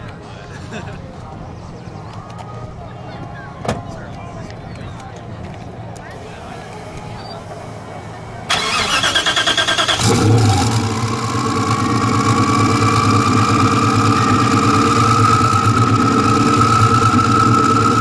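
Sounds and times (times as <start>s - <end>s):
engine cranking and idling: 6.0s - 18.0s.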